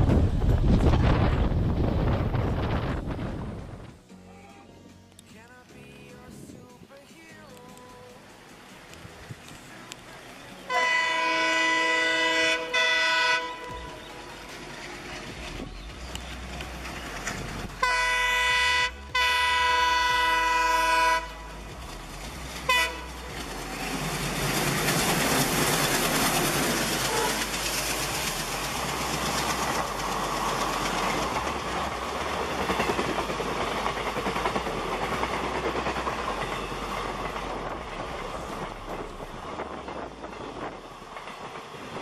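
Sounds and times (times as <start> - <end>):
wheels rushing on rail: 0.0 - 4.1, 6.2 - 42.0
train horn blasts: 10.7 - 14.2, 17.8 - 21.7, 22.6 - 23.3, 27.0 - 27.5.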